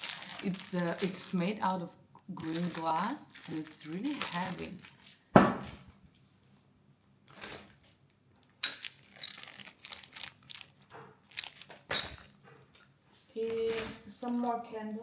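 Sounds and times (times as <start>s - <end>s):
packaging crinkling and rustling: 0.0s - 1.6s, 2.4s - 6.0s, 7.3s - 15.0s
sharp thump: 5.4s - 5.8s.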